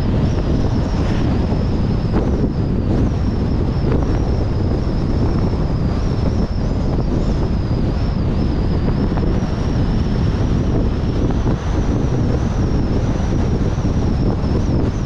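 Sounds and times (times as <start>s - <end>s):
road and wind noise: 0.0s - 15.0s
thin high whine: 0.0s - 15.0s.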